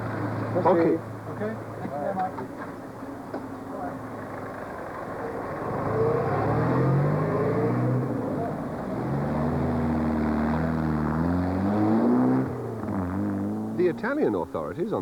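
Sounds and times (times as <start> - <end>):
car engine accelerating: 3.7 - 14.6.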